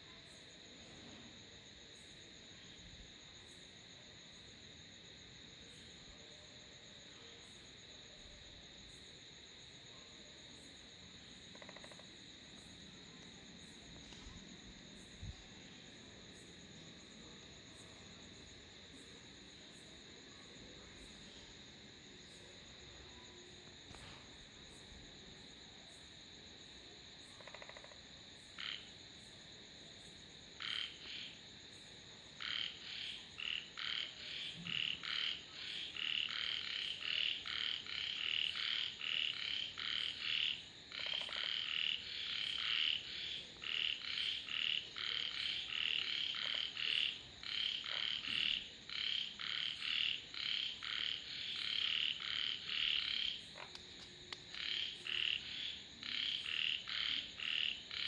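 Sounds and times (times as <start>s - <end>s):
frogs croaking: 10.6s - 16.6s, 27.2s - 29.0s, 30.5s - 31.7s, 32.3s - 58.0s.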